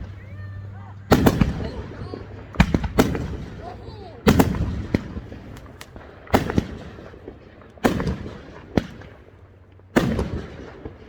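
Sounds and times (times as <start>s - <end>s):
fireworks booming: 0.0s - 11.0s
small firework pops: 4.3s - 9.2s.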